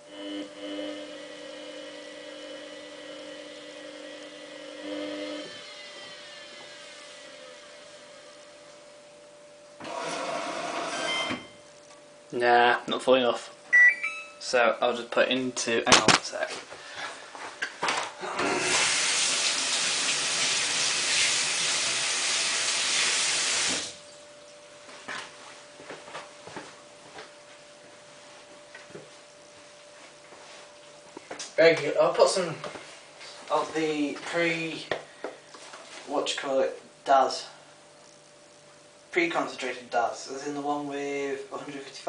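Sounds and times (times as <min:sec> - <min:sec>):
washing machine motor whine: 0:00.0 - 0:14.2, 0:17.0 - 0:41.8
water spraying into washing machine: 0:18.4 - 0:24.0.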